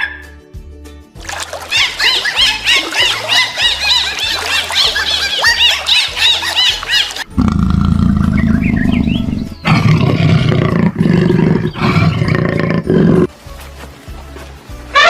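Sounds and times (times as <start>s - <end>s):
high chirping squeaks: 1.7s - 7.3s
big cat roaring: 7.3s - 13.3s.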